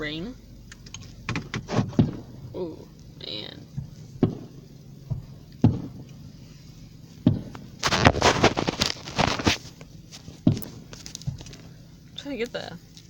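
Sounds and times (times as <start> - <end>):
firework booms: 1.8 - 2.6, 3.8 - 6.1, 7.2 - 8.8
firework crackling: 7.0 - 11.7.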